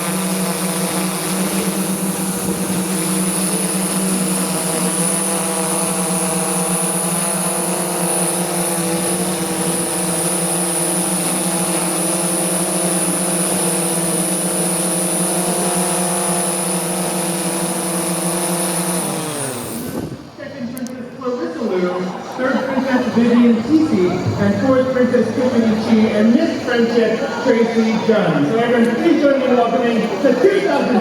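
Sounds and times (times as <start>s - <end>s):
drone motors buzzing whine: 0.0s - 20.4s.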